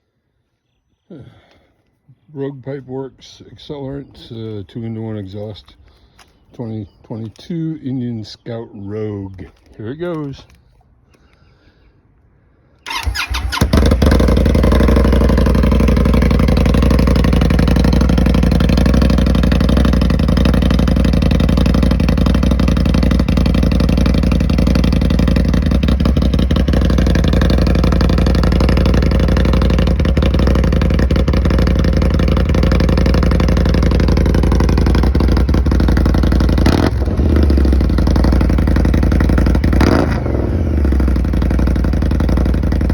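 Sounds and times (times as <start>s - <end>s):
motorcycle engine idling: 12.8s - 42.9s
motorcycle revving: 12.9s - 42.9s.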